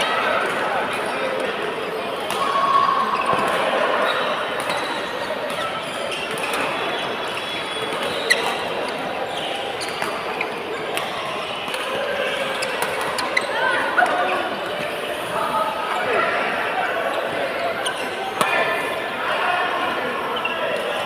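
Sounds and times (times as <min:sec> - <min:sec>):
sports hall background noise: 0:00.0 - 0:21.0
shoes squeaking on court: 0:02.2 - 0:16.2, 0:17.0 - 0:19.0, 0:20.3 - 0:21.0.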